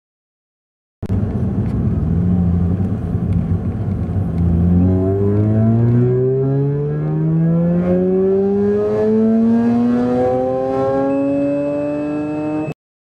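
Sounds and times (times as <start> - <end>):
rotary engine revving hard: 4.4 - 12.8
steady high beep: 10.4 - 12.8.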